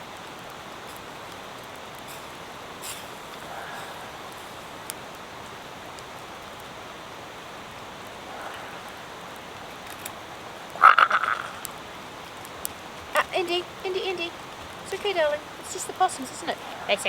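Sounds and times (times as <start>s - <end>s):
heavy rain: 0.0s - 17.0s
sharp ticks: 0.2s - 5.2s, 8.0s - 17.0s
possum harsh call: 2.1s - 4.9s, 8.1s - 11.9s, 13.1s - 17.0s.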